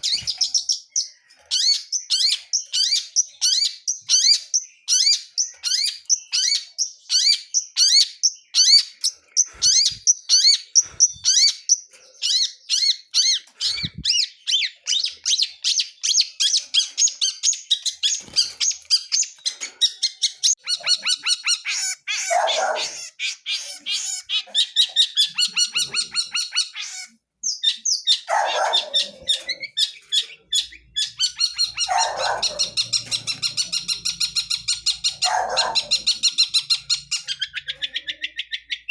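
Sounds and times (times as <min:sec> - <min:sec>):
bird singing chirps and trills: 0:00.0 - 0:38.9.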